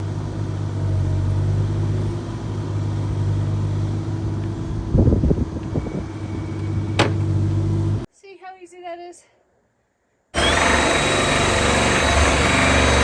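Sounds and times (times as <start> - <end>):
engine humming: 0.0 - 8.1, 10.4 - 13.0
clattering knocks: 7.0 - 7.5.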